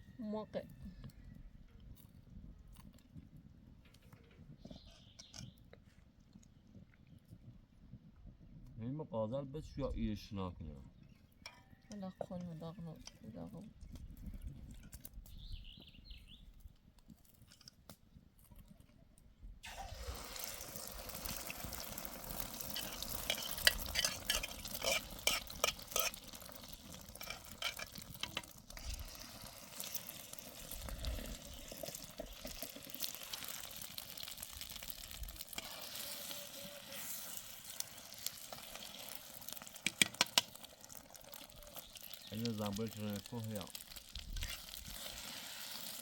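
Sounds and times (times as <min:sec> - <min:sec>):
stirring scraping clicks: 0:11.0 - 0:15.2, 0:22.4 - 0:45.1
food sizzling in a pan: 0:19.6 - 0:46.0.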